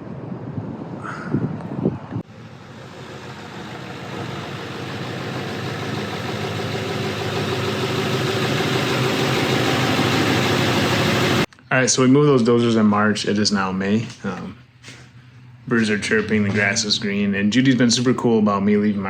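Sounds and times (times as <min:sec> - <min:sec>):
engine idling: 0:02.2 - 0:11.5.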